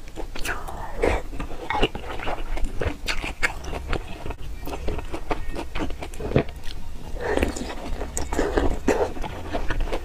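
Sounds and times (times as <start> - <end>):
chewing mouth sounds: 0.1 - 10.0.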